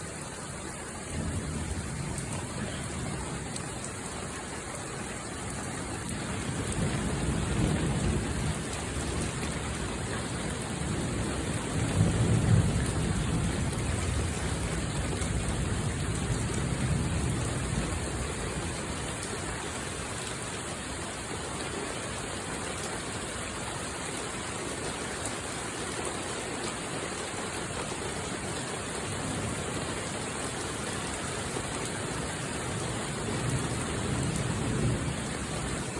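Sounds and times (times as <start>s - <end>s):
steady rain: 0.0s - 35.9s
thunder rumbles: 1.1s - 3.9s, 5.7s - 19.3s, 32.7s - 35.9s.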